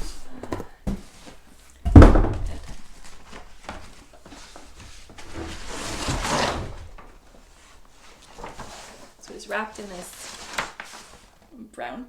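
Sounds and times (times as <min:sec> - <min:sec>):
cardboard box thud: 0:00.0 - 0:07.2
cardboard rustling: 0:00.0 - 0:11.5.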